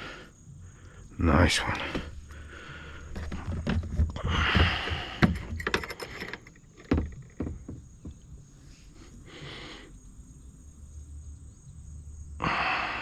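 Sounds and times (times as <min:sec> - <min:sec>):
knocks and clicks in kayak: 0:03.1 - 0:08.4
sharp thumps: 0:03.1 - 0:08.4.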